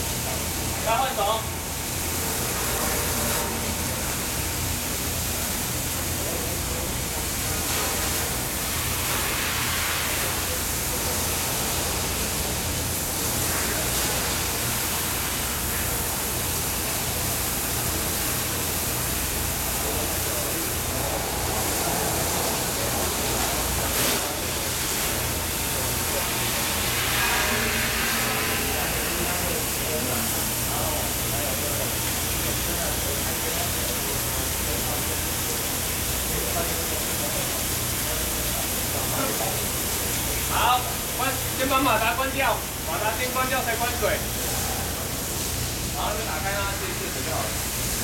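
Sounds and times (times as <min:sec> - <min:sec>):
pump motor humming: 0:10.2 - 0:40.4.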